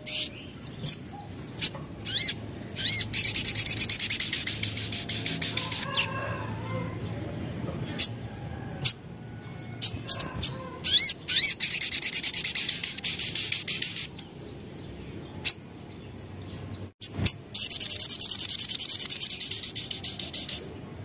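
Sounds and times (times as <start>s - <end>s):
sharp bird chips: 0.0s - 6.1s, 9.8s - 14.4s, 16.6s - 20.8s
sunbird singing trills: 0.0s - 6.6s, 7.9s - 20.9s.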